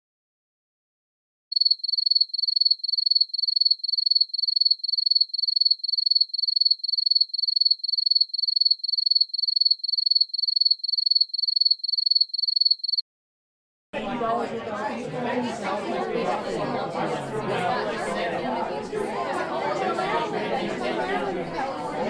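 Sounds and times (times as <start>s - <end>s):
cricket chirping: 1.5s - 13.0s.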